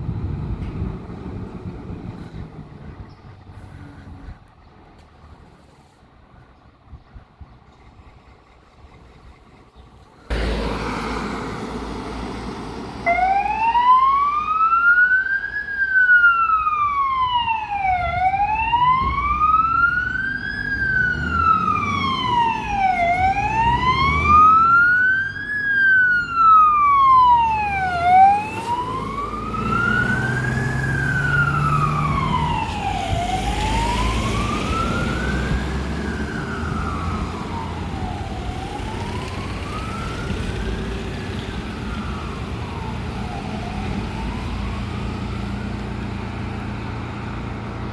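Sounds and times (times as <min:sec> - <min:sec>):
truck engine rumble: 0:00.0 - 0:47.9
fire engine siren wailing: 0:10.3 - 0:47.9.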